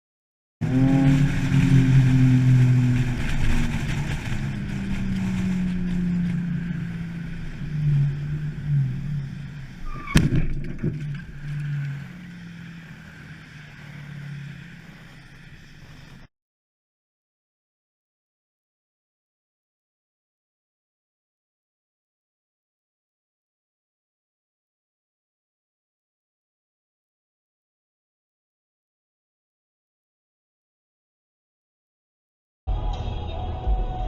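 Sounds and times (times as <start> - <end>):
vehicle engine and road noise: 0.6 - 16.3, 32.7 - 34.0.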